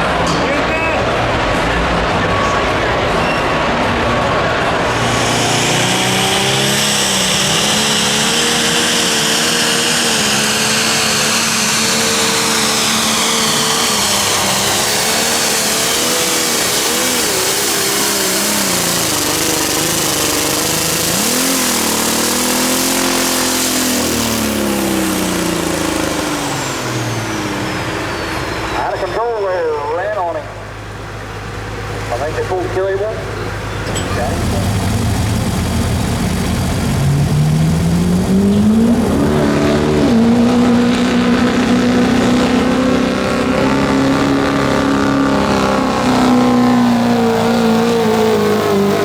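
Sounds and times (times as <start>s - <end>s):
vehicle engine revving high: 0.0s - 49.0s.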